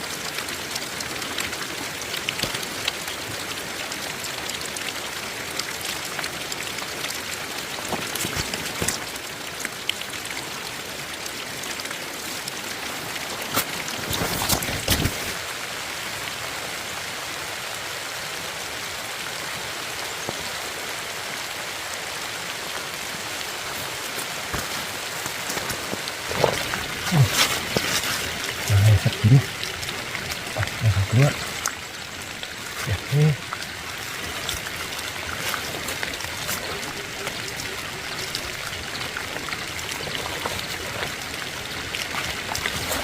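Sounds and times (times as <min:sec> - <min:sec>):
rain hissing: 0:18.5 - 0:43.0.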